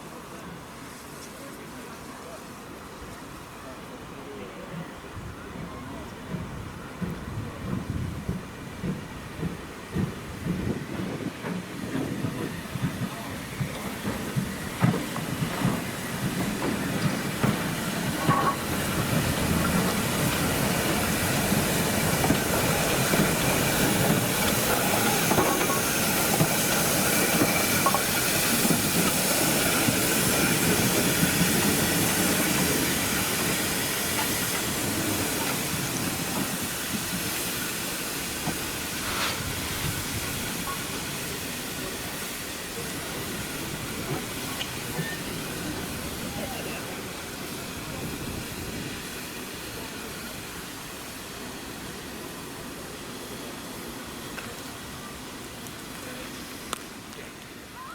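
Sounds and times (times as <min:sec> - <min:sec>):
train wheels clattering over rails: 0:06.1 - 0:52.0.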